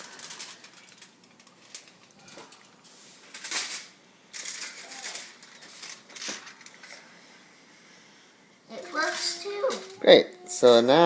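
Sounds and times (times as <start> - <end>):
aluminium foil crinkling: 0.0 - 7.1.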